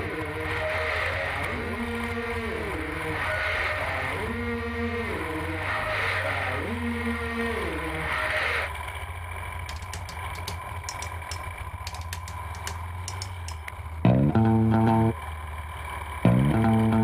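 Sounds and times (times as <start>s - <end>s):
motorcycle engine idling: 8.7s - 17.0s
light clicks: 9.7s - 13.8s
guitar music: 13.1s - 15.2s, 16.3s - 17.0s.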